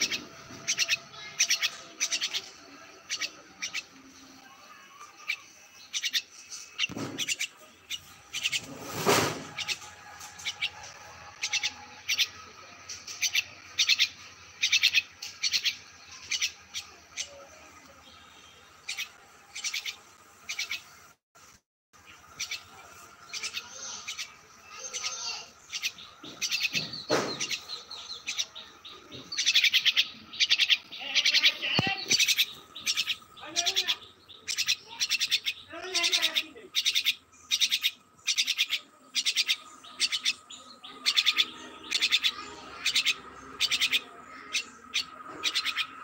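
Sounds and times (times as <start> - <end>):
small songbird chirping: 0.0 - 8.9, 9.5 - 21.2, 22.0 - 46.0.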